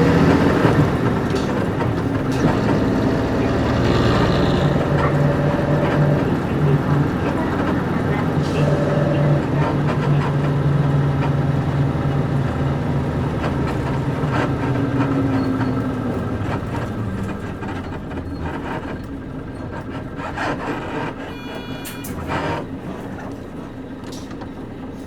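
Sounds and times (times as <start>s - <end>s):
bus diesel engine: 0.0s - 25.0s
suspension and body creaks: 17.2s - 23.2s
short high beep: 21.3s - 22.3s.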